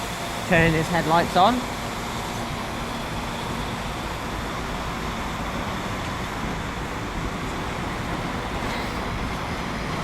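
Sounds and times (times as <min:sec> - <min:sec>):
trains rumbling and hissing: 0:00.0 - 0:10.0.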